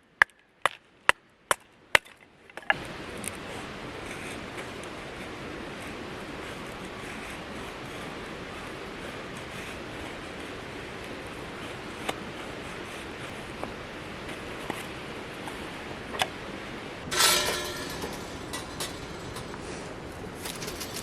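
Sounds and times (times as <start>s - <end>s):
steady background hiss: 2.7s - 21.0s
rattling clatter: 17.0s - 21.0s
hard objects clinking: 17.1s - 21.0s.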